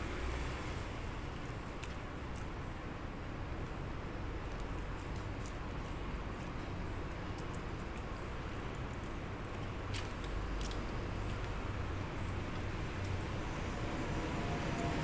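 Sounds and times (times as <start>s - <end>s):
chewing salad: 4.3s - 13.2s.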